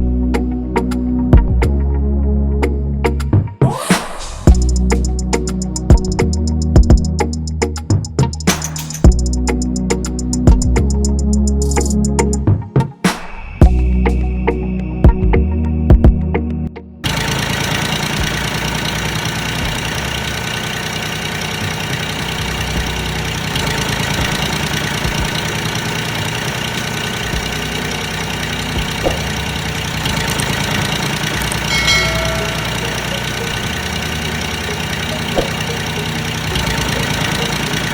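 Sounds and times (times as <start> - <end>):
engine idling: 4.5 - 12.3, 17.0 - 37.9.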